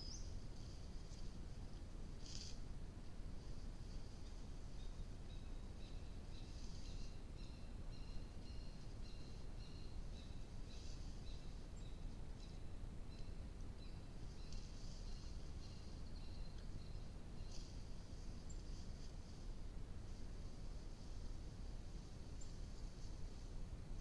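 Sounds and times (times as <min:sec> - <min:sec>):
low rumble and hiss: 0:00.0 - 0:24.0.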